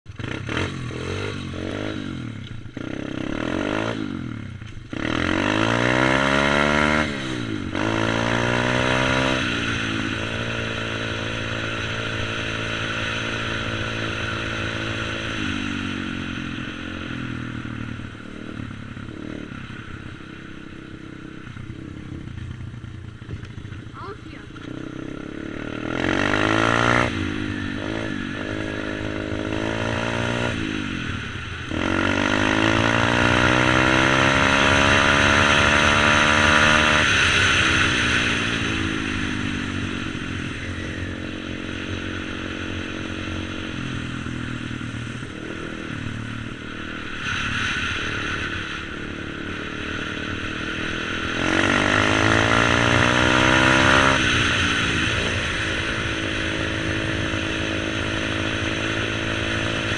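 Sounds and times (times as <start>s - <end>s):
motorbike engine revving: 0.1s - 59.9s.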